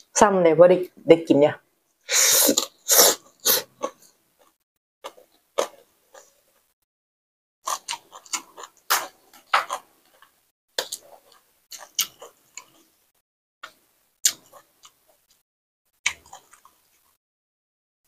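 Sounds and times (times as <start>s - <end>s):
chewing: 7.6s - 12.9s, 16.1s - 17.2s.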